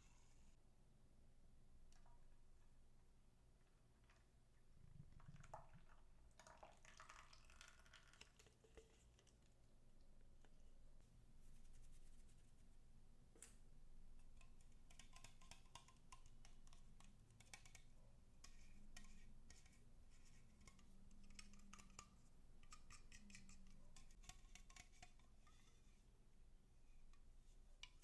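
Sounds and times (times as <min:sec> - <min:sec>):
faint clicks and crackles: 0:13.3 - 0:26.0.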